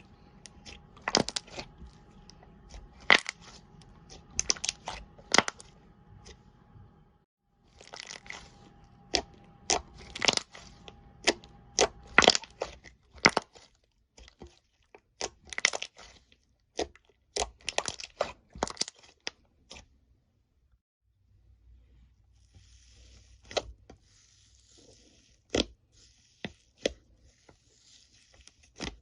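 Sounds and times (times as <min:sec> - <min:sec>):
slime crackling and popping: 0:00.4 - 0:01.8, 0:02.5 - 0:05.7, 0:07.7 - 0:14.5, 0:15.1 - 0:16.2, 0:16.8 - 0:19.3.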